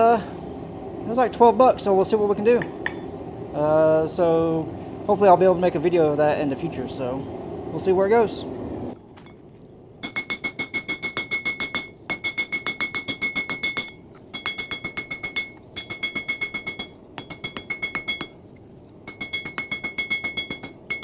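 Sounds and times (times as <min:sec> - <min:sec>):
hammer striking steel on anvil: 0:02.6 - 0:03.2, 0:10.0 - 0:18.4, 0:19.0 - 0:21.0.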